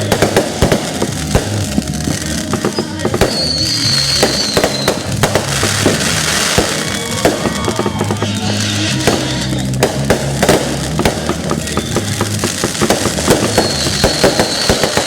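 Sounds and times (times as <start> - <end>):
fireworks bangs and crackles: 0.0 - 15.0
music with steady bass: 0.0 - 15.0
high firework whistle: 2.7 - 15.0.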